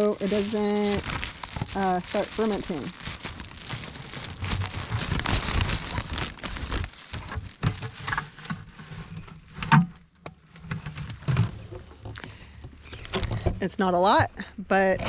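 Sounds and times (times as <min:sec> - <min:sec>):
liquid pattering and splashing: 0:00.0 - 0:08.6
plastic bag rustling: 0:00.0 - 0:12.2.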